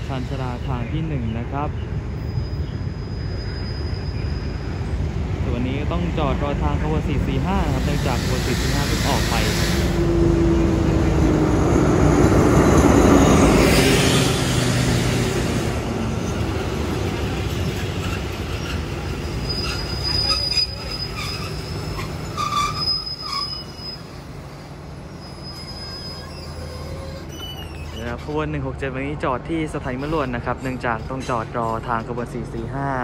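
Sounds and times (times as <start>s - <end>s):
train rumbling: 0.0s - 33.0s
wheel and brake squeals: 2.2s - 5.0s, 17.2s - 28.6s, 29.8s - 32.0s.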